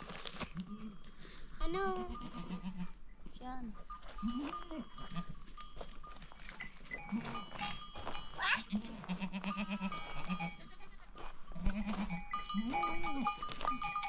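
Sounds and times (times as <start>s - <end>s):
goats and sheep bleating: 0.5s - 3.0s, 4.1s - 5.6s, 6.9s - 14.0s
small animal bells tinkling: 0.5s - 14.0s.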